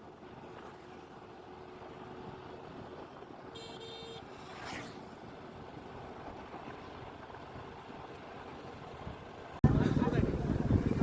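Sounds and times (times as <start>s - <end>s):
faint road traffic: 0.0s - 10.5s
car horn toot: 3.6s - 4.2s
vehicle whooshing past: 4.3s - 5.2s.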